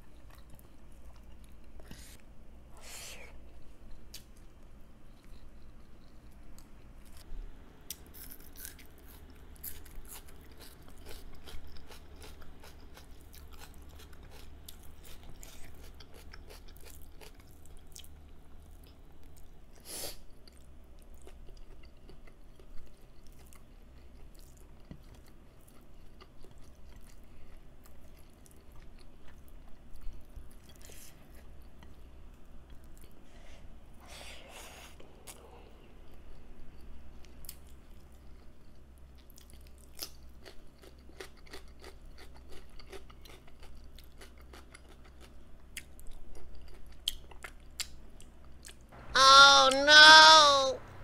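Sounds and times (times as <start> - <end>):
steady low hum: 0.0 - 24.2, 50.8 - 51.0
person chewing and biting food: 7.9 - 18.1.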